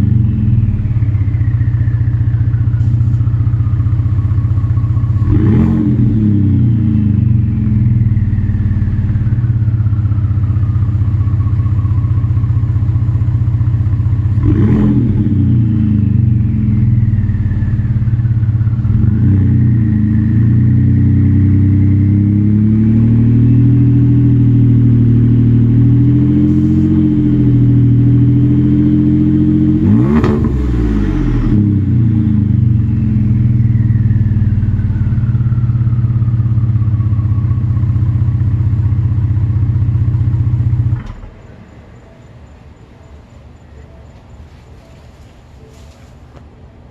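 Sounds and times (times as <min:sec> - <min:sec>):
engine revving: 0:00.0 - 0:41.3
truck exhaust idling drone: 0:00.0 - 0:46.9.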